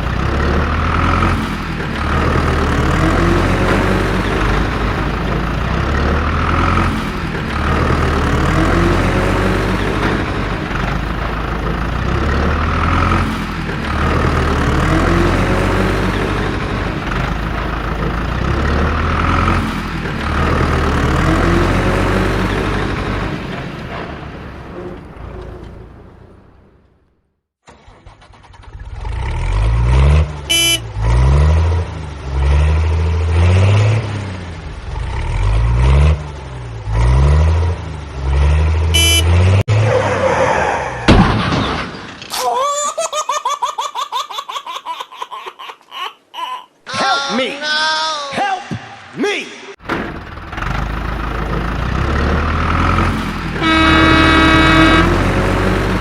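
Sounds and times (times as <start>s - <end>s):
heavy vehicle engine humming: 0.0s - 27.3s, 28.3s - 39.7s, 49.8s - 56.0s
sharp crash: 41.0s - 42.4s
cartoon-style laughter: 42.4s - 47.3s.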